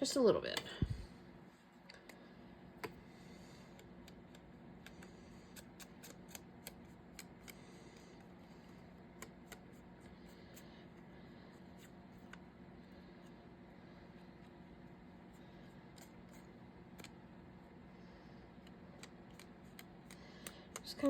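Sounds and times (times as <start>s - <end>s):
small scissors snipping paper: 3.8s - 7.7s.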